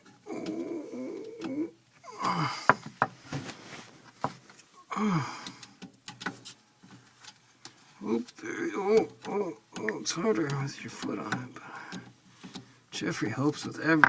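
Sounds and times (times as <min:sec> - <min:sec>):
person groaning: 0:00.2 - 0:02.8, 0:04.9 - 0:05.5, 0:08.0 - 0:11.9
metal and plastic clicks: 0:05.4 - 0:07.8.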